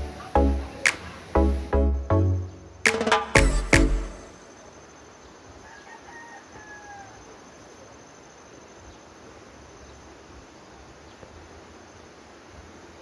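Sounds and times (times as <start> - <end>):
low background hiss: 0.0 - 13.0
faint rooster crowing: 5.5 - 7.8.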